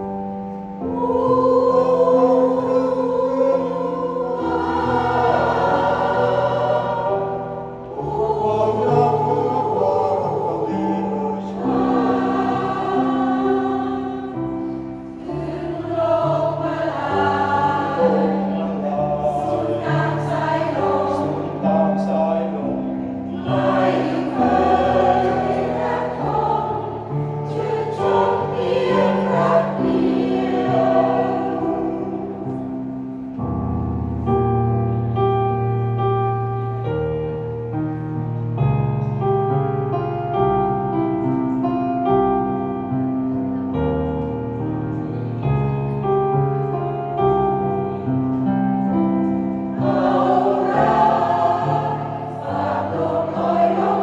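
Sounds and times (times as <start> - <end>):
choir singing in harmony: 0.0 - 33.6, 46.7 - 54.0.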